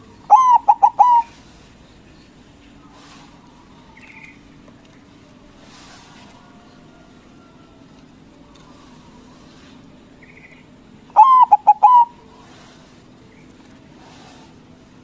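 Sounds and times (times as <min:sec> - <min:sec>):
dove cooing: 0:00.0 - 0:01.6, 0:11.1 - 0:12.8
faint low hum: 0:00.0 - 0:15.0.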